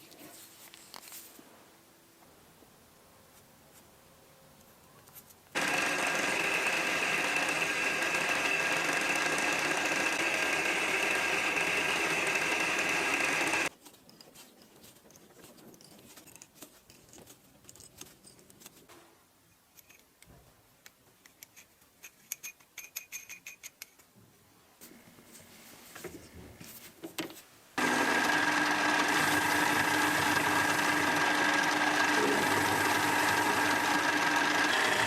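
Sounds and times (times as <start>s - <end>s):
electric power tool whining: 5.6s - 13.7s, 27.8s - 35.0s.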